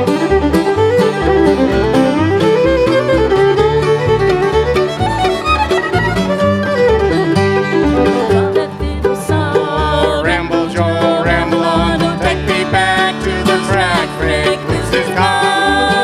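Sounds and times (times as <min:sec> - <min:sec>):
banjo: 0:00.0 - 0:16.0
bluegrass band playing: 0:00.0 - 0:16.0.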